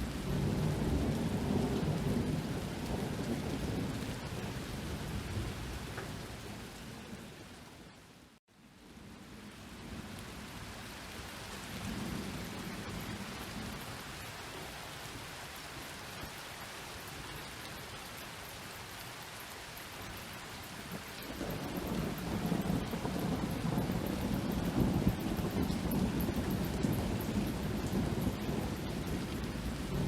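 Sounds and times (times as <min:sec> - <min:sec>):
steady rain: 0:00.0 - 0:30.0
low rolling thunder: 0:00.1 - 0:07.2, 0:21.2 - 0:30.0.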